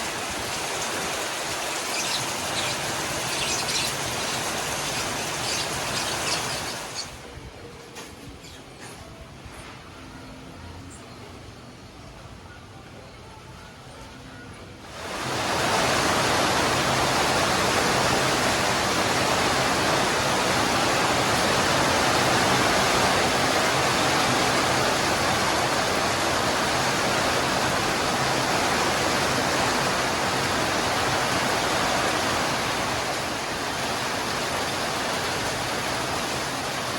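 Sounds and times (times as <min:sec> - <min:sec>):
heavy rain pouring: 0:00.0 - 0:07.2, 0:14.9 - 0:36.9.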